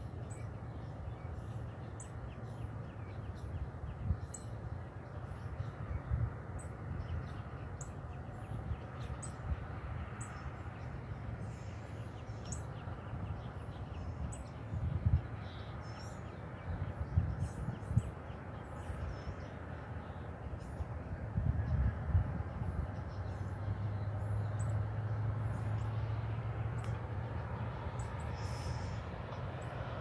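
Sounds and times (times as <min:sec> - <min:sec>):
small birds chirping: 0:00.0 - 0:26.1, 0:26.7 - 0:30.0
steady low rumble: 0:00.0 - 0:30.0.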